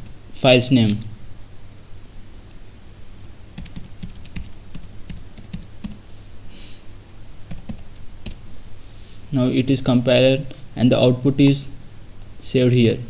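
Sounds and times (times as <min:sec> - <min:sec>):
typing on computer keyboard: 0:03.6 - 0:06.0, 0:07.5 - 0:08.4.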